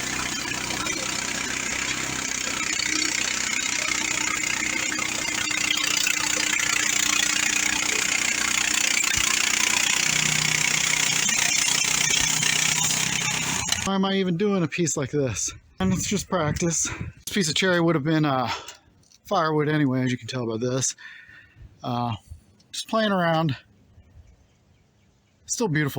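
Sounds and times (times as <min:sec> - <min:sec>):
band blade cutting log: 0:00.0 - 0:13.9
gasoline engine running: 0:00.0 - 0:13.9.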